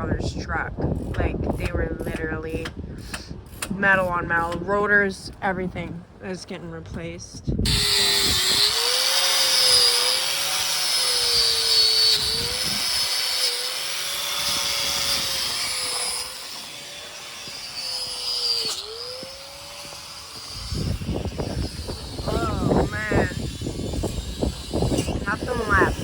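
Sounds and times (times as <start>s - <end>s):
machine motor whining: 7.7s - 26.0s.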